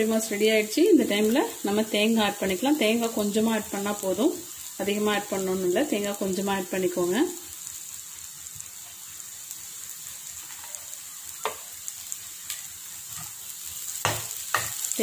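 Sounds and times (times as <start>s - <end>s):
food sizzling in a pan: 0.0s - 15.0s
metal ladle knocking on pan: 14.0s - 14.8s.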